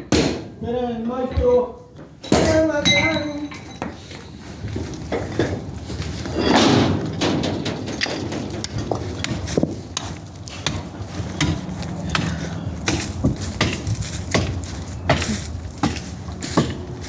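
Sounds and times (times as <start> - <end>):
construction knocks and clinks: 0.0 - 17.0
steady low hum: 3.6 - 17.0.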